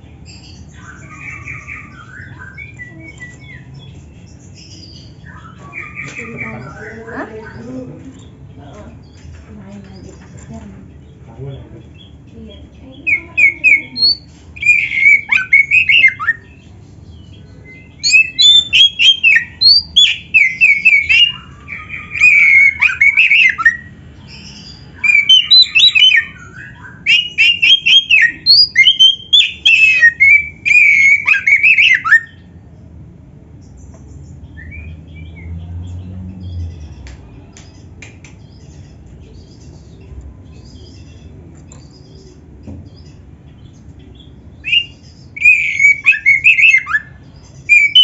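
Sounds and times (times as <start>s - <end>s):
bird singing whistled phrases: 13.0s - 16.6s, 17.7s - 23.9s, 25.0s - 32.4s, 44.6s - 48.0s.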